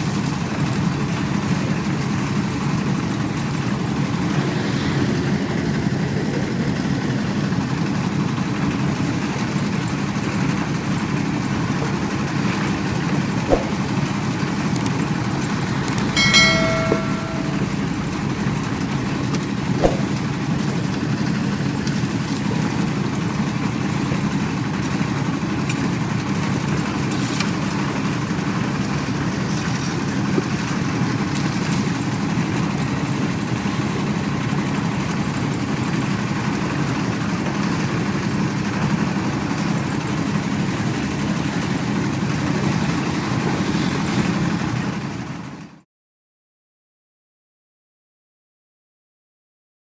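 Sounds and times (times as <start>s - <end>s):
sharp knocks: 13.5s - 14.0s, 16.1s - 18.0s, 19.8s - 20.4s
brief high tone: 16.0s - 18.5s.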